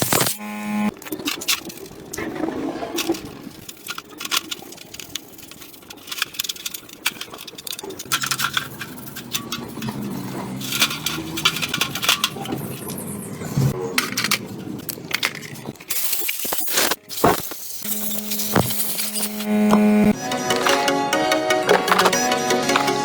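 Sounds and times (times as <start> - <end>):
machine hum: 0.0 - 4.0, 17.2 - 23.0
metal parts clinking and scraping: 0.0 - 23.0.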